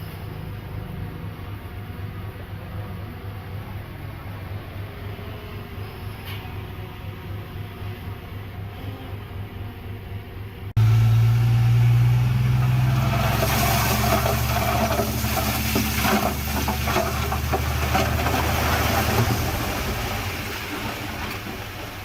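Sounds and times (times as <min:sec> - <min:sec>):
heavy diesel engine running: 0:10.8 - 0:22.0
rough clattering noise: 0:12.5 - 0:22.0.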